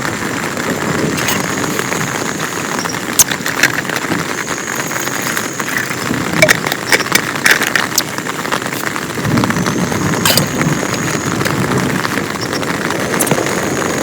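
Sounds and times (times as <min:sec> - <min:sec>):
heavy rain falling: 0:00.0 - 0:14.0
raindrops ticking close by: 0:00.0 - 0:14.0.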